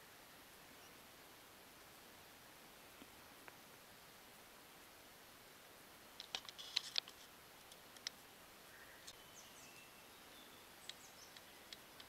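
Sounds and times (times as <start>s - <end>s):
light background hiss: 0.0s - 12.0s
small birds chirping: 6.1s - 12.0s.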